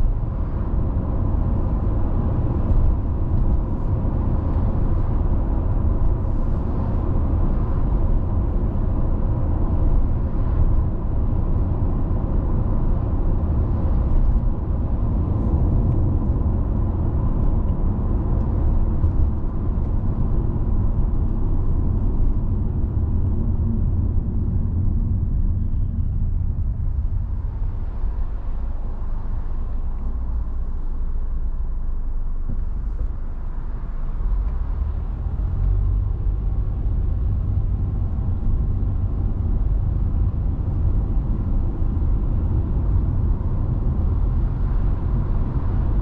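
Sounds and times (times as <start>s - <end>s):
car tyres and engine rumble: 0.0s - 46.0s.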